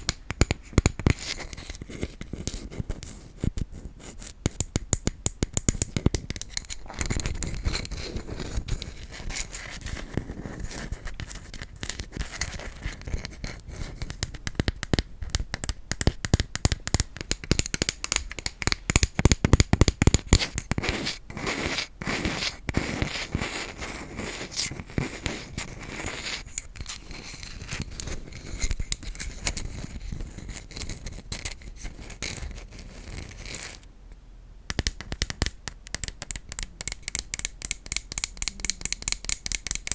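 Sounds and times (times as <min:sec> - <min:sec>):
tapping on wooden objects: 0:34.7 - 0:39.9.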